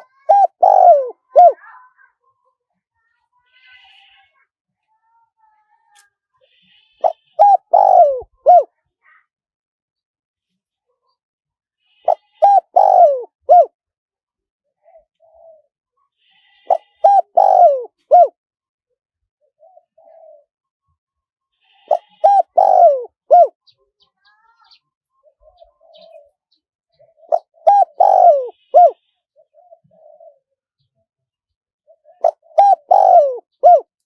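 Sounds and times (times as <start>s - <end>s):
dove cooing: 0.0s - 1.6s, 7.0s - 8.7s, 12.0s - 13.7s, 15.2s - 15.7s, 16.6s - 18.3s, 19.6s - 20.5s, 21.8s - 23.6s, 25.2s - 26.3s, 27.0s - 30.5s, 32.0s - 33.9s.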